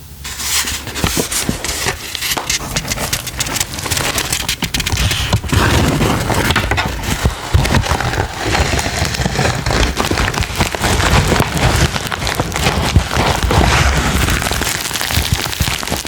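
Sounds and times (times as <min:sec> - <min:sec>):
packaging crinkling and rustling: 0:00.2 - 0:16.0.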